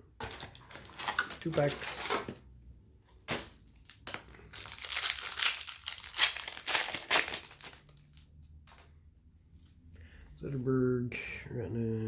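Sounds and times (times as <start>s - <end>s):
foil wrapper crinkling: 3.9s - 8.8s.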